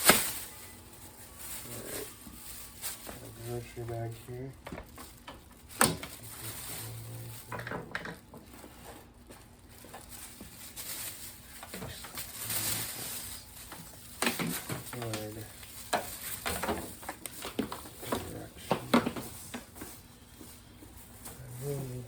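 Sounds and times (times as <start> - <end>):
plastic bag rustling: 0.0 - 22.0.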